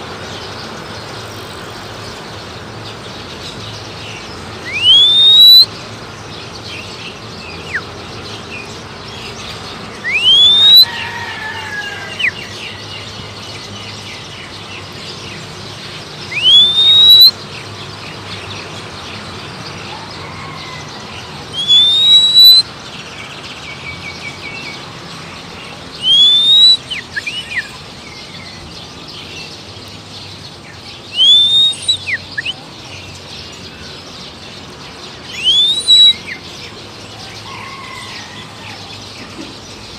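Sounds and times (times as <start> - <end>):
person whistling rising note: 4.7 - 5.6, 10.1 - 10.9, 16.4 - 17.3, 21.6 - 22.6, 26.0 - 26.8, 31.2 - 31.9, 35.4 - 36.2.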